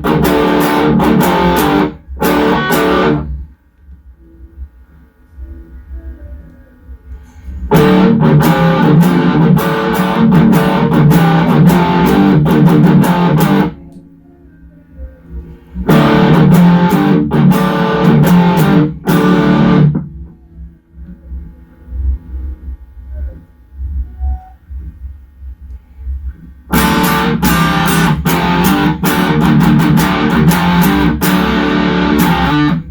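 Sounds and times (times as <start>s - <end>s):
distorted electric guitar chords: 0.0s - 3.6s, 7.6s - 14.2s, 15.2s - 22.3s, 26.6s - 32.9s
low hum: 0.0s - 32.9s.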